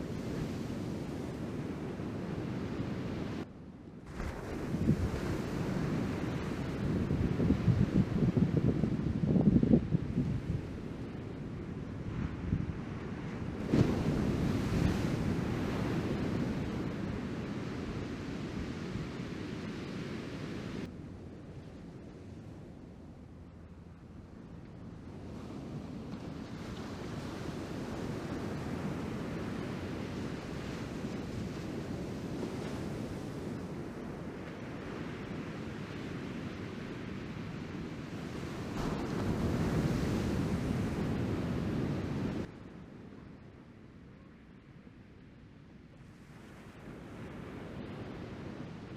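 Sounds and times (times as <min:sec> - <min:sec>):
wind buffeting microphone: 0:00.0 - 0:43.0
ocean surf breaking: 0:12.3 - 0:20.9, 0:25.6 - 0:42.5.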